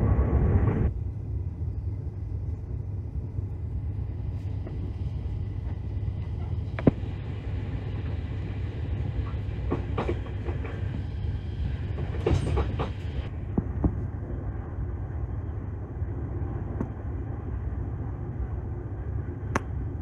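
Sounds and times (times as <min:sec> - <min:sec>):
train carriage rumble: 0:00.0 - 0:20.0
train wheels clacking on track: 0:09.2 - 0:11.1, 0:11.8 - 0:13.3.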